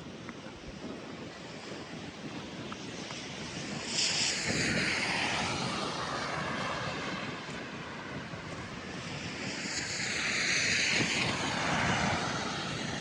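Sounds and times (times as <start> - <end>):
loud hissing rush: 3.2 - 13.0.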